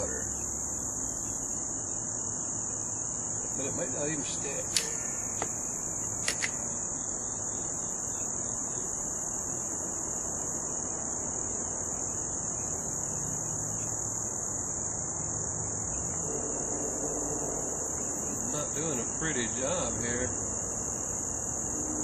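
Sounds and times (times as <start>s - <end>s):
crickets chirping: 0.0s - 22.0s
quick clicks: 4.6s - 5.5s, 6.2s - 6.7s.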